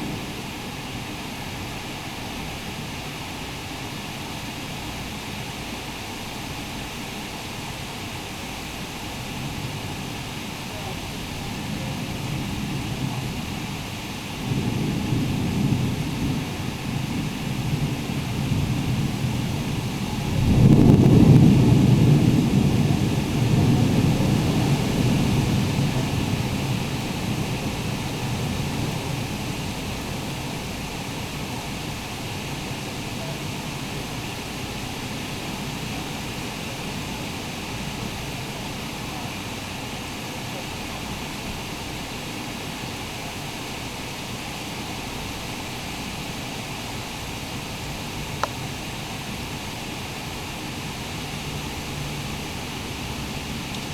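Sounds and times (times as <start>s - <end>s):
deep thunder rumble: 0.0s - 1.7s, 9.3s - 39.2s
rain hiss: 0.0s - 53.9s
wind: 0.0s - 53.9s.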